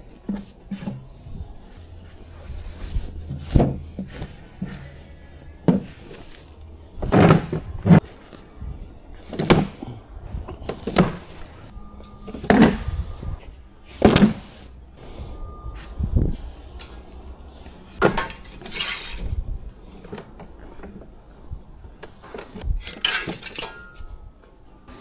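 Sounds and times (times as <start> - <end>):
scraping: 0.0 - 21.2
hard items knocking and clunking: 0.2 - 14.6, 18.0 - 19.4.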